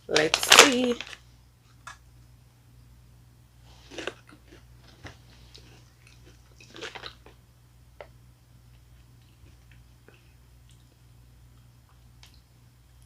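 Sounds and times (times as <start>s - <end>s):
person chewing wafer bar: 3.7s - 7.4s.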